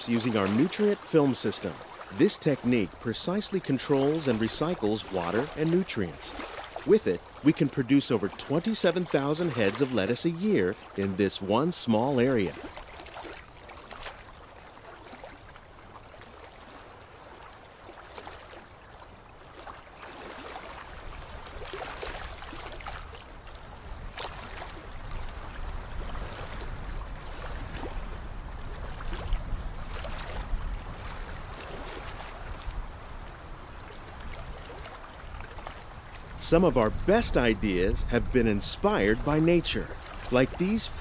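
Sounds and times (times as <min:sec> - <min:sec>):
water flowing and splashing: 0:00.0 - 0:41.0.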